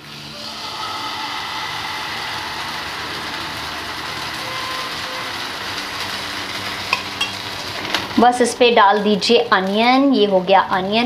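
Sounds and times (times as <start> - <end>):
batter sizzling in hot oil: 0.0 - 11.0.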